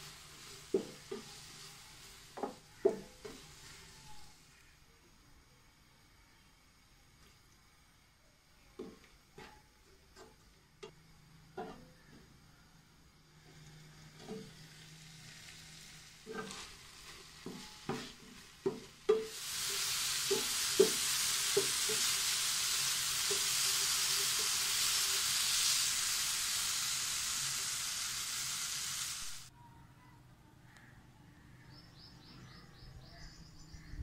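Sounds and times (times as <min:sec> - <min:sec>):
chicken sizzling in a frying pan: 0:00.0 - 0:04.6, 0:11.1 - 0:29.5
spatula knocking against a pan: 0:02.4 - 0:03.4, 0:17.5 - 0:19.4.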